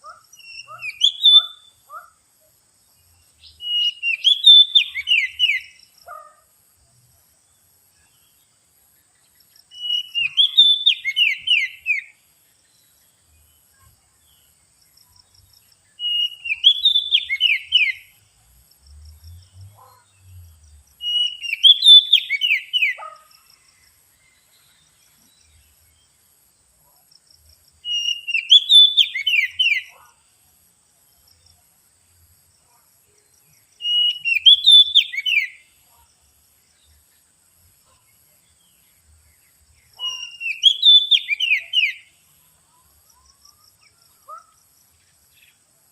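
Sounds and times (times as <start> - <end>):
bird whistling phrase: 9.8 - 12.0, 21.0 - 23.0, 27.9 - 29.9, 33.8 - 35.5, 40.0 - 42.0.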